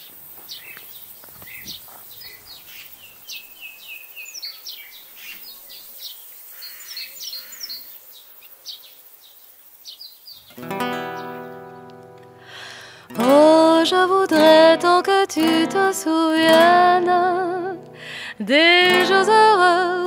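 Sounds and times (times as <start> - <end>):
songbirds singing and chirping: 0.0 - 15.8.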